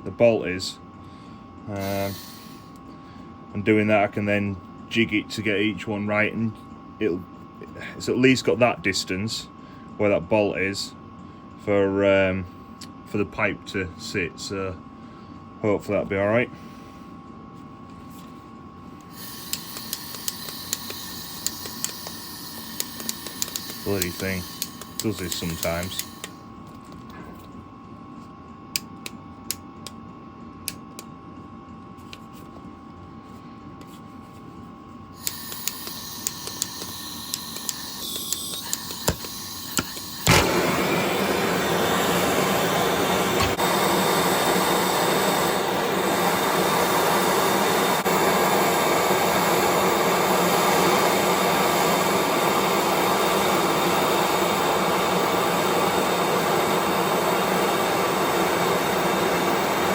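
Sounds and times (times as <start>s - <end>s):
gas hissing: 1.7s - 2.8s, 19.1s - 26.5s, 35.1s - 59.9s
gas torch roaring: 1.7s - 2.8s, 19.0s - 26.5s, 35.1s - 59.9s
torch igniter clicks: 19.0s - 26.4s, 28.7s - 30.0s, 30.6s - 31.1s, 35.2s - 44.6s.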